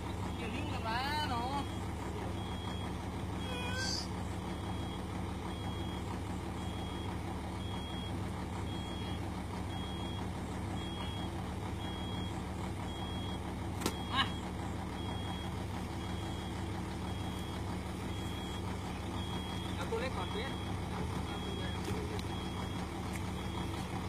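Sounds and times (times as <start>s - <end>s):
diesel engine running: 0.0s - 24.0s
high electronic beeps: 3.4s - 4.1s.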